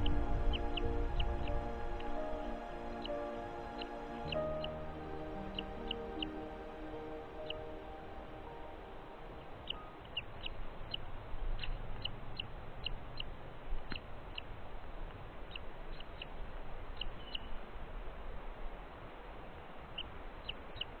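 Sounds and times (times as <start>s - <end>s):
low steady rumble: 0.0s - 9.6s.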